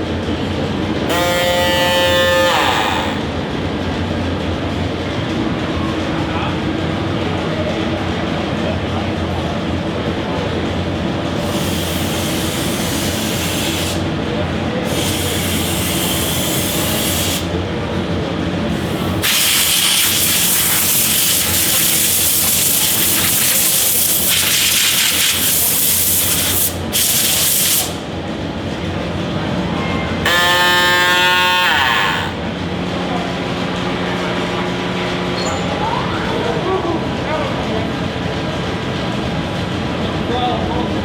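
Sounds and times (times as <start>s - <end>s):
steady mechanical hum: 0.0s - 41.0s
loud hissing: 18.9s - 28.0s.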